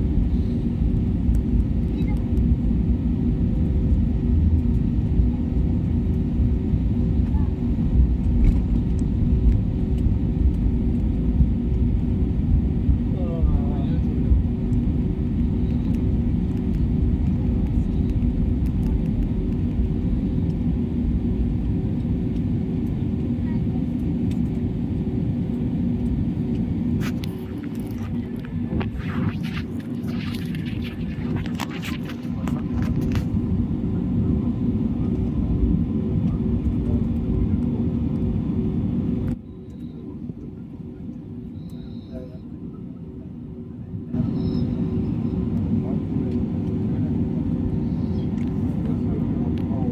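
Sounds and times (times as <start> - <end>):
jet engines heard from cabin: 0.0 - 49.9
steady hum: 24.9 - 49.9.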